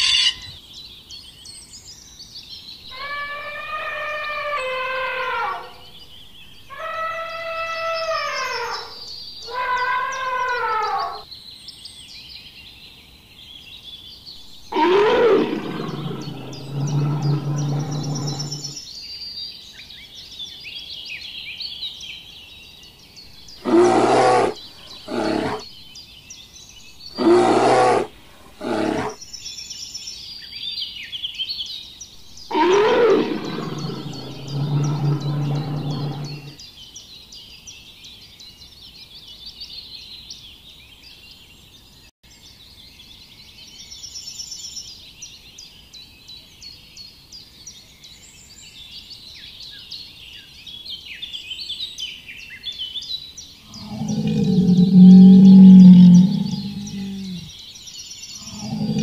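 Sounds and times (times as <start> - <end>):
elephant trumpeting: 0.0 - 0.5, 14.7 - 18.8, 23.6 - 25.6, 27.2 - 29.2, 32.5 - 36.6, 53.7 - 57.5, 58.5 - 59.0
birds chirping faintly: 0.0 - 11.2, 12.7 - 19.3, 22.7 - 29.8, 32.0 - 38.6, 53.4 - 59.0
deep rough roars: 14.7 - 18.8, 27.2 - 29.1, 32.5 - 36.6, 53.7 - 57.5, 58.4 - 59.0.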